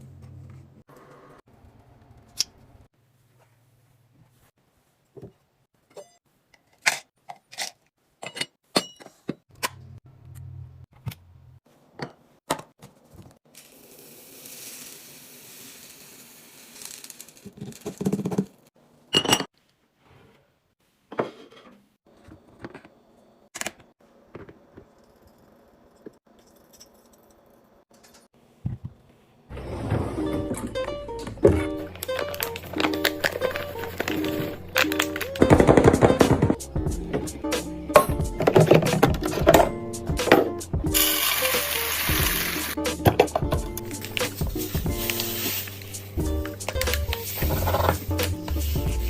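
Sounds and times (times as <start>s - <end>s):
packages clicking and clinking: 31.8s - 36.6s.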